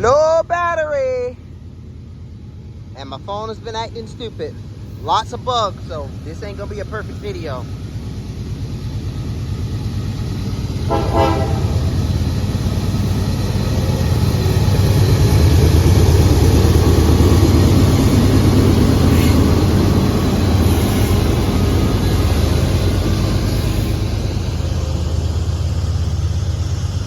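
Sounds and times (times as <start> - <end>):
diesel locomotive engine rumble: 0.0 - 27.0
train horn toot: 10.8 - 12.0.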